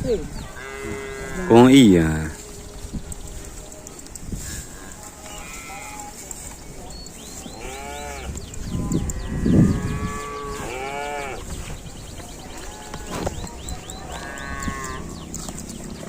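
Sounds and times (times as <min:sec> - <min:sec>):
cattle mooing: 0:00.5 - 0:01.7, 0:04.8 - 0:06.2, 0:07.4 - 0:11.5, 0:12.5 - 0:15.5.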